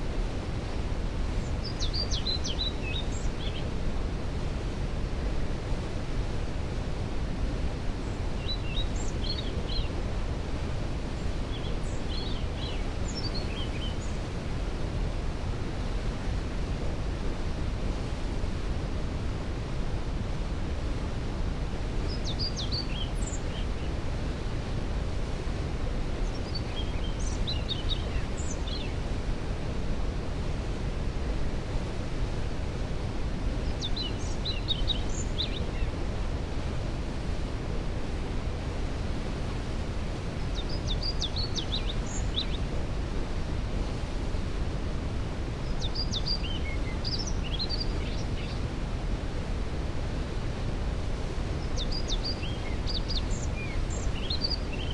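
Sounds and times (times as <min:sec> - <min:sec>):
songbird singing: 0:01.4 - 0:03.7, 0:08.0 - 0:10.0, 0:11.2 - 0:14.2, 0:22.0 - 0:24.6, 0:26.2 - 0:29.0, 0:33.6 - 0:36.0, 0:40.4 - 0:42.7, 0:45.6 - 0:48.6, 0:51.5 - 0:54.9.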